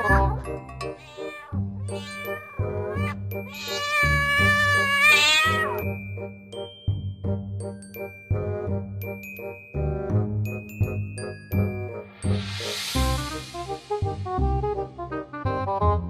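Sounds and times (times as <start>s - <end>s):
kitten meowing: 0.0s - 5.8s
background music: 0.0s - 16.0s.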